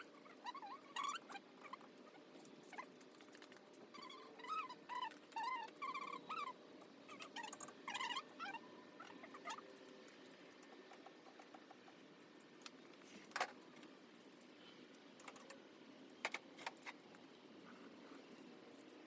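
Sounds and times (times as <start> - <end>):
small parts clicking and tapping: 14.9 - 17.3.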